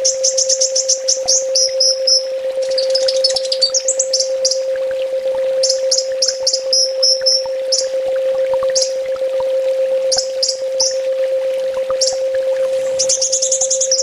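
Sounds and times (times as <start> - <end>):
sunbird chips and trills: 0.0 - 4.7, 5.6 - 8.0, 8.7 - 9.0, 10.1 - 11.0, 12.0 - 14.0
steady low hum: 0.0 - 14.0.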